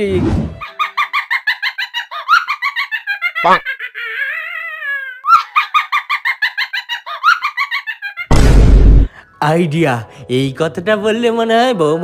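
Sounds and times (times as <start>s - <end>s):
woman laughing loudly: 0.6s - 8.3s.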